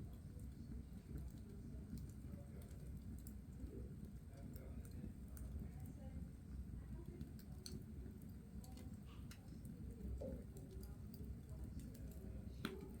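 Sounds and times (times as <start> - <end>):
coal fire crackling: 7.0 - 13.0.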